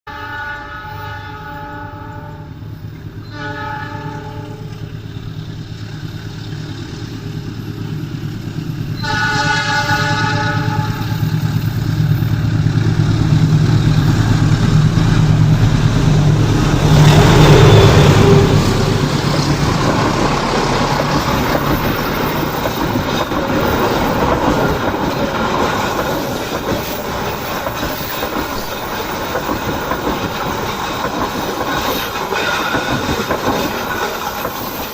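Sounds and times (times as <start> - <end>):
locomotive horn blasts: 0.1 - 4.8, 9.0 - 11.4, 16.7 - 19.0
locomotive engine droning: 0.1 - 34.9
train wheels clacking on rails: 4.1 - 34.9.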